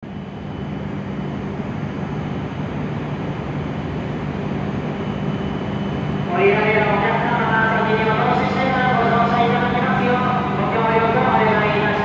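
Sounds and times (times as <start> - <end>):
train hum and rumble: 0.0 - 12.0.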